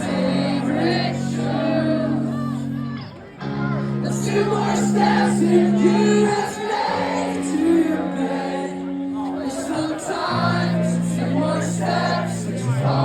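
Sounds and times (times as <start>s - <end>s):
crowd singing along: 0.0s - 13.0s
person singing: 0.0s - 13.0s.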